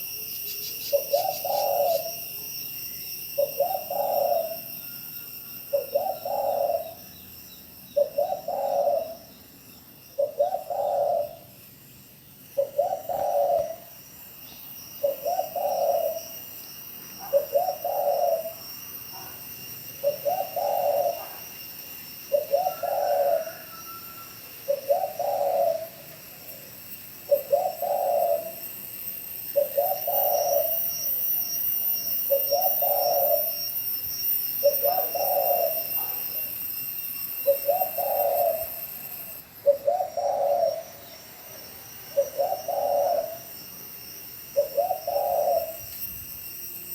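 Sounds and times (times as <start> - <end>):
dove cooing: 0.8 - 2.2, 3.4 - 4.7, 5.7 - 7.1, 7.9 - 9.3, 10.1 - 11.6, 12.5 - 14.0, 15.0 - 16.4, 17.2 - 19.4, 20.0 - 21.6, 22.2 - 26.3, 27.3 - 28.7, 29.5 - 31.0, 32.3 - 33.6, 34.6 - 36.2, 37.4 - 38.8, 39.6 - 43.6, 44.6 - 46.0.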